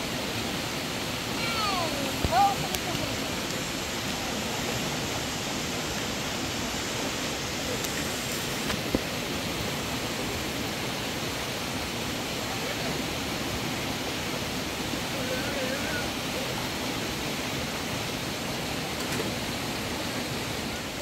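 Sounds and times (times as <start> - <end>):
water flowing: 0.0 - 21.0.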